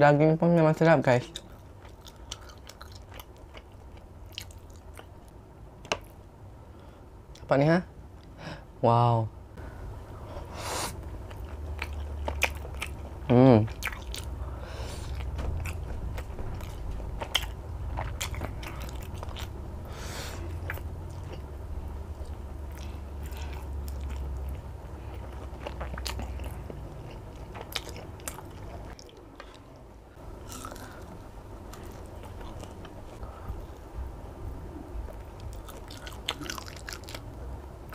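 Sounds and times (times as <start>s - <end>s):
low steady hum: 0.0s - 37.9s
person chewing with mouth clicks: 11.3s - 14.4s, 22.2s - 29.8s, 35.1s - 37.2s.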